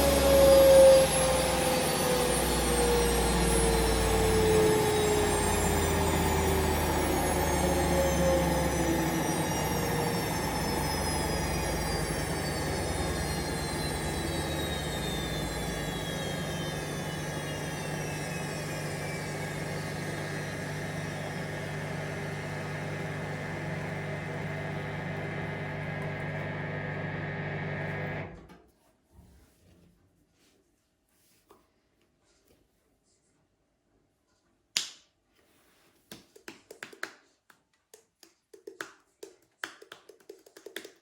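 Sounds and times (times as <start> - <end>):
washing machine spinning down: 0.0 - 28.4.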